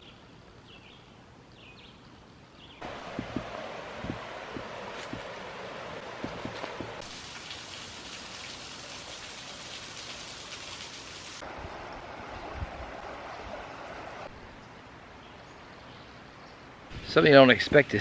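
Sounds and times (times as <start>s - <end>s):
steady rushing noise: 2.8s - 7.0s.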